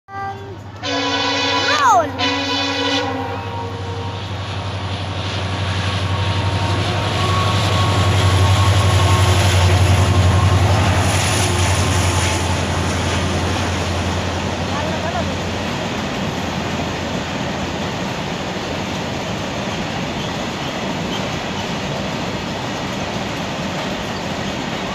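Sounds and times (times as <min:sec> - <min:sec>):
train horn: 0:00.1 - 0:04.5, 0:06.0 - 0:12.4
train wheels rumbling and rattling: 0:00.3 - 0:24.9.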